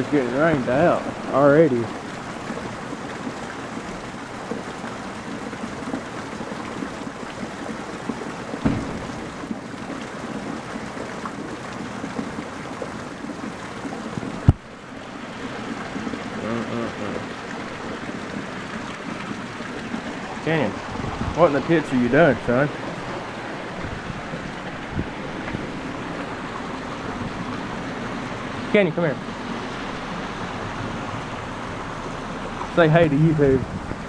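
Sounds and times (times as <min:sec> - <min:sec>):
heavy rain falling: 0:00.0 - 0:34.0
dull knock: 0:08.6 - 0:09.3.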